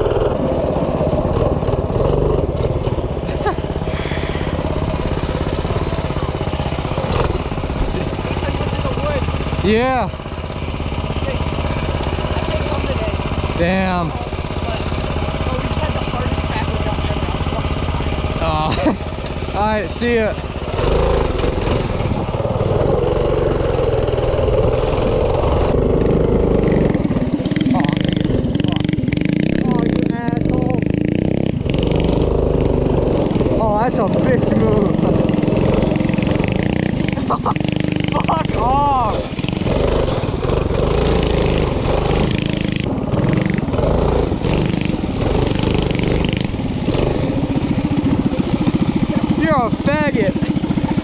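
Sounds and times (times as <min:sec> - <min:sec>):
minibike engine running: 0:00.0 - 0:51.0.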